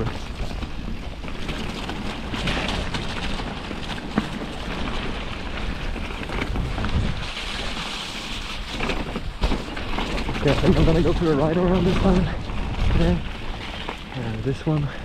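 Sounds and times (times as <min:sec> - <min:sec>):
mountain bike rolling: 0:00.0 - 0:15.0
wind buffeting microphone: 0:10.2 - 0:14.8.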